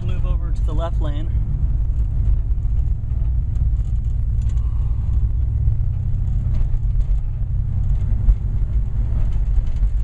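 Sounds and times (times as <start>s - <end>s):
car engine rumbling inside cabin: 0.0s - 10.0s.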